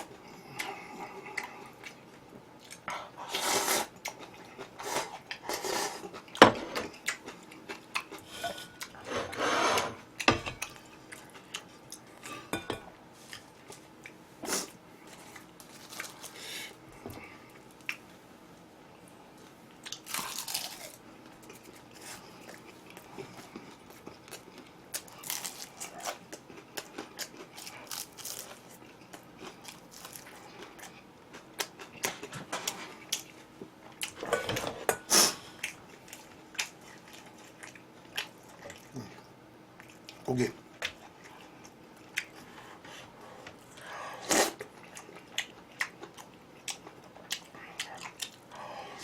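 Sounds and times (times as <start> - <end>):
chewing: 0.4 - 3.1, 6.0 - 9.0, 10.2 - 12.4, 19.8 - 34.4, 35.6 - 42.5, 43.4 - 49.0.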